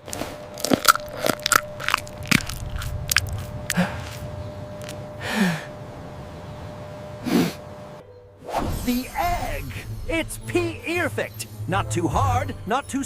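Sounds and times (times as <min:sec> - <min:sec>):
chewing and lip-smacking: 0:00.0 - 0:05.0
sharp wet mouth clicks: 0:00.6 - 0:04.2.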